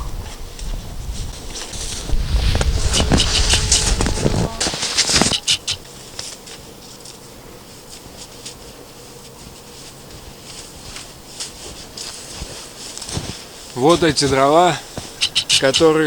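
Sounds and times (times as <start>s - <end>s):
footsteps crunching through snow: 0.3s - 16.0s
faint crunches and ticks: 0.5s - 16.0s.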